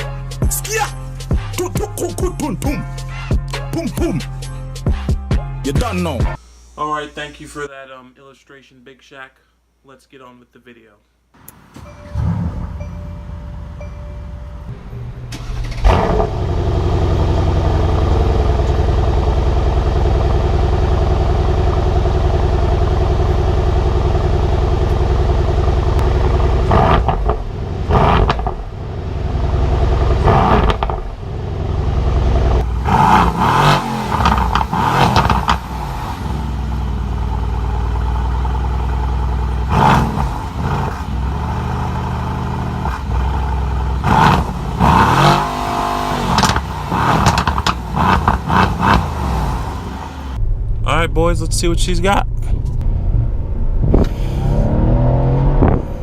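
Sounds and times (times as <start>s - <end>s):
car engine idling: 11.4s - 54.5s
car engine revving: 11.4s - 56.0s.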